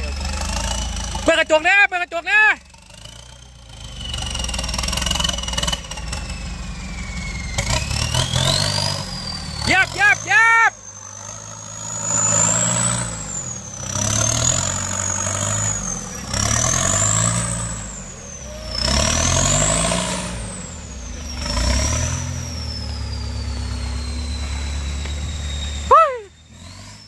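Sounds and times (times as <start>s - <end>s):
off-road engine revving: 0.0s - 27.0s
thin high whistle: 21.1s - 27.0s.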